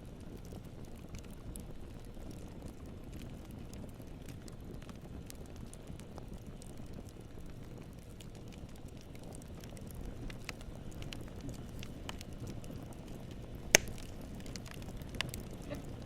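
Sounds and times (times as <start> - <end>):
campfire rumbling and crackling: 0.0 - 16.0
loud sharp pop from fire: 13.6 - 15.5.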